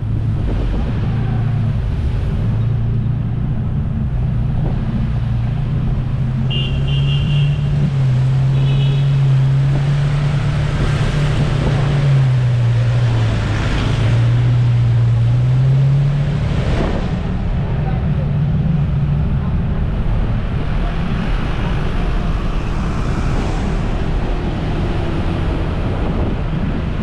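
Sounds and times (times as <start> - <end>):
engine revving: 7.5 - 27.0.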